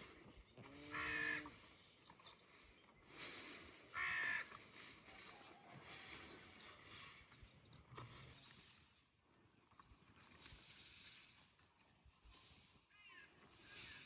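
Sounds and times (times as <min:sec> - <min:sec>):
crow cawing: 0:03.9 - 0:04.5.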